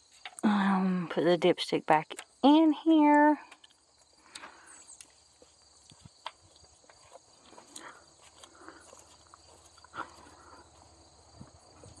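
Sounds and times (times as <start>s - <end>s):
insects chorus: 0.0s - 12.0s
handling clicks and scrapes: 3.5s - 12.0s.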